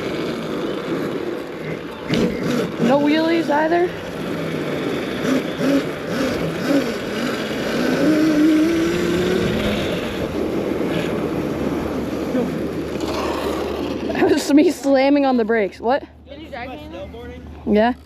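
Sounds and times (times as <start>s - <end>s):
electric dirt bike motor whine: 0.0s - 14.4s
wind rush on microphone: 8.2s - 12.9s.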